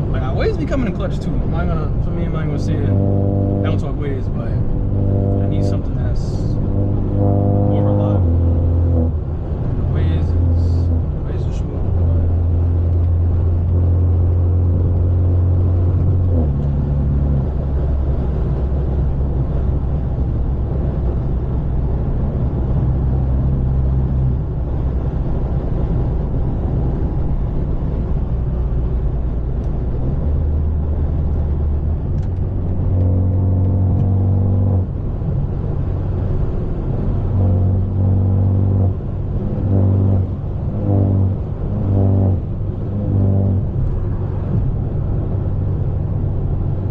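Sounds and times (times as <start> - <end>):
loud car engine drone: 0.0 - 46.9.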